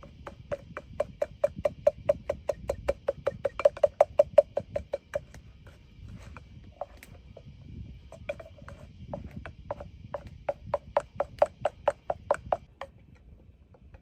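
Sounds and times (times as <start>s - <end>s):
sharp knocks on wood: 0.0s - 5.4s, 8.2s - 12.9s.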